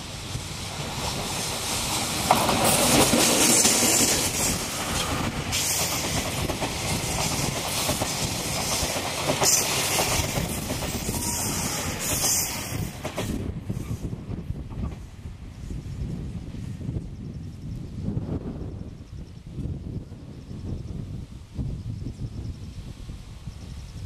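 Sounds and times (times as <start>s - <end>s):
wheels rumbling on rail: 0.0s - 24.0s
wheels clacking over rail joints: 0.8s - 13.4s.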